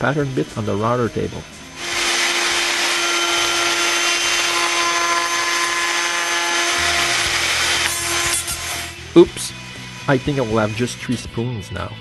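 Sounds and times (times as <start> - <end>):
router table humming: 1.7 - 9.0.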